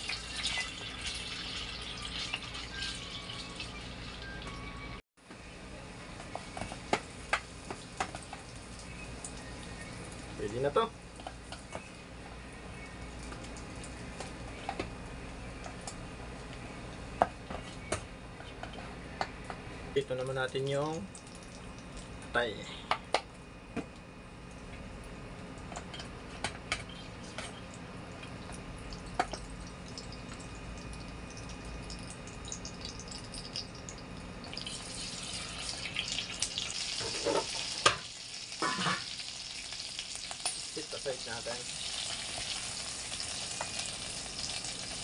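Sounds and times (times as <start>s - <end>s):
liver sizzling in hot oil: 0.0s - 4.2s, 34.5s - 45.0s.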